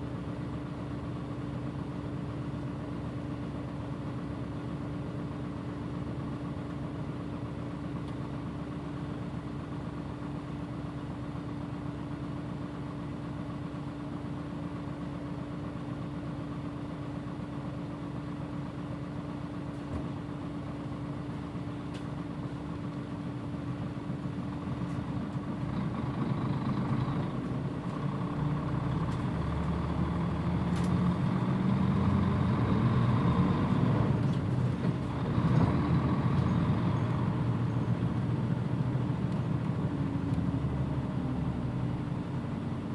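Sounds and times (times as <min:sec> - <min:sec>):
bus diesel engine idling: 0:00.0 - 0:42.9
bus engine speeding up: 0:21.4 - 0:42.9.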